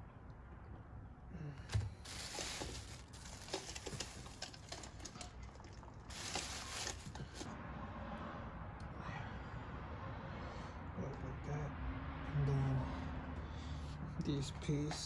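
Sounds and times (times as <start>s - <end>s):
rustling: 2.0s - 7.5s.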